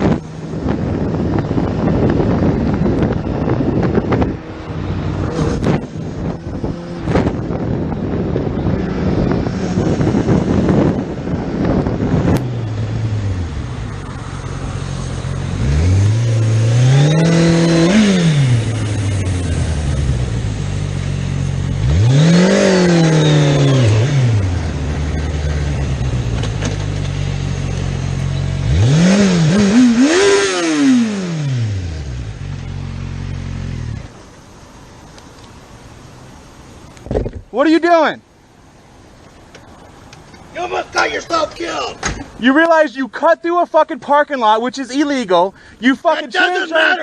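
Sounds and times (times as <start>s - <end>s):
motorcycle engine revving: 0.0s - 34.1s.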